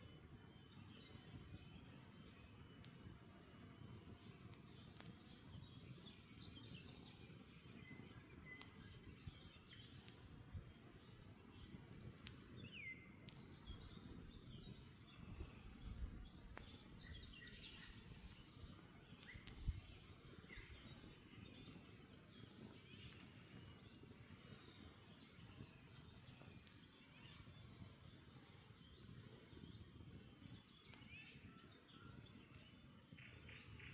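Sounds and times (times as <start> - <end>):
campfire crackling and popping: 0.1 - 33.9
birds chirping: 5.8 - 33.9.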